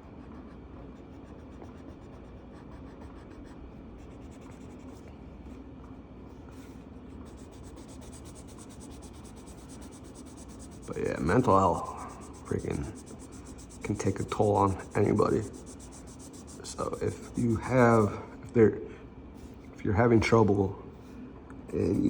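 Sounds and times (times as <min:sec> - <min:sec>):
marker rubbing on paper: 0:00.0 - 0:05.0, 0:06.6 - 0:18.2, 0:21.8 - 0:22.0.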